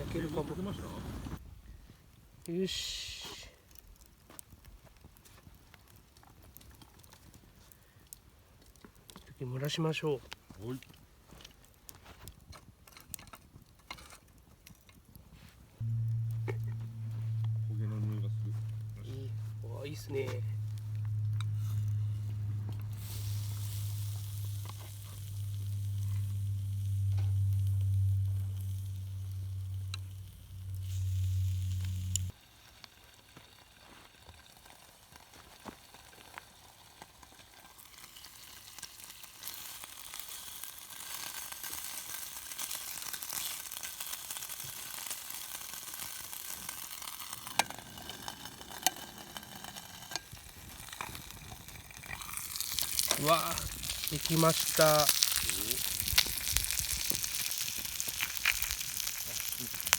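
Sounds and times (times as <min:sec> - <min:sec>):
sharp crackles: 0:00.0 - 0:01.4, 0:02.4 - 0:59.9
low steady hum: 0:15.8 - 0:32.4
food sizzling in cookware: 0:15.8 - 0:33.4, 0:37.7 - 0:59.9.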